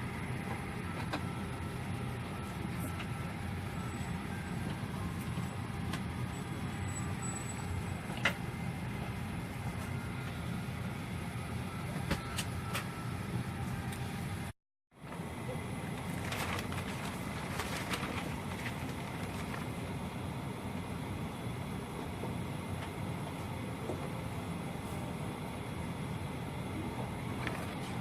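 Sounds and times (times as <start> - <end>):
airliner cabin drone: 0.0 - 28.0.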